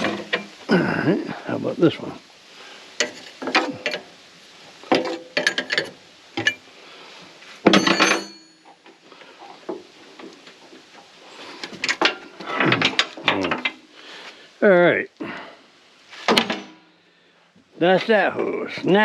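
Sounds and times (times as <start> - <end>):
metal tools clicking and clanking: 3.0 - 4.1, 4.9 - 6.6, 7.7 - 8.9, 11.7 - 13.8
ringing metal clang: 7.7 - 8.8.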